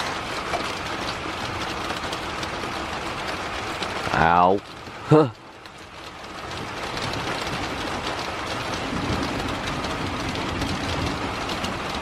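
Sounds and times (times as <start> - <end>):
heavy rain falling: 0.0 - 12.0
rolling thunder rumble: 7.0 - 12.0.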